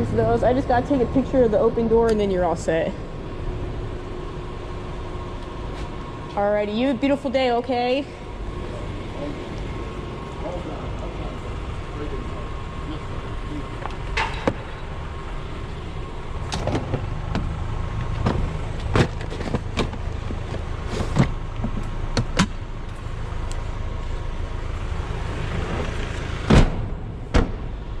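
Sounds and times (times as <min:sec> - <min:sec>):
vehicle engine idling: 0:00.0 - 0:28.0
loud thump: 0:26.5 - 0:27.8.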